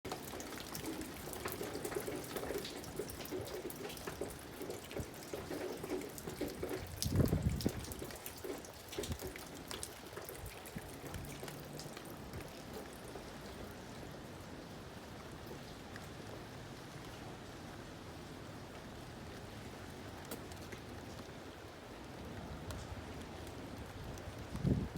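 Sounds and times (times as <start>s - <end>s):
raindrops ticking on surfaces: 0.0s - 24.9s
steady rain: 0.0s - 24.9s.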